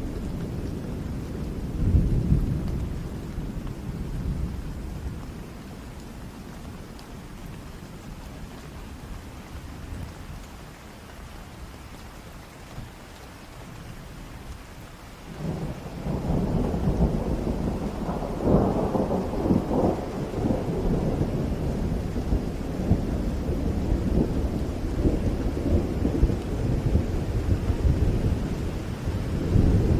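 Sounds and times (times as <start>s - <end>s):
steady rain: 0.0s - 29.9s
thunder rolling and cracking: 15.3s - 29.9s.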